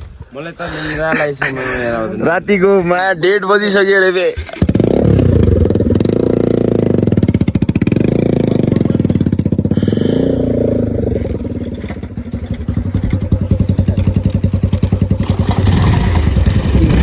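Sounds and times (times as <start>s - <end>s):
motorcycle engine revving: 4.3s - 17.0s.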